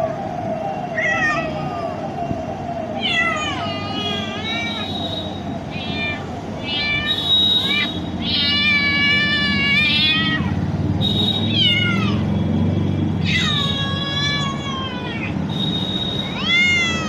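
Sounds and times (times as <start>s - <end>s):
cat meowing: 1.0s - 1.9s, 3.0s - 4.9s, 5.7s - 10.6s, 11.5s - 12.2s, 13.2s - 15.4s, 16.3s - 17.0s.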